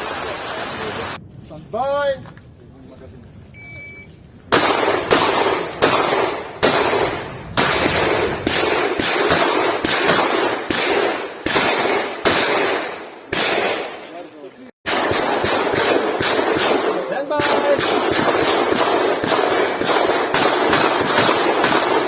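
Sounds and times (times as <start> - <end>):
shotgun shots with echo: 4.5 - 14.2, 14.8 - 22.0.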